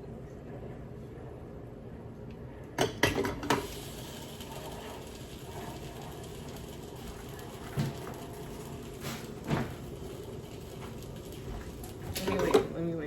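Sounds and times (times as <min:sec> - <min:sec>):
low background hum: 0:00.0 - 0:13.0
dishes clinking and clattering: 0:02.8 - 0:03.8, 0:04.6 - 0:13.0.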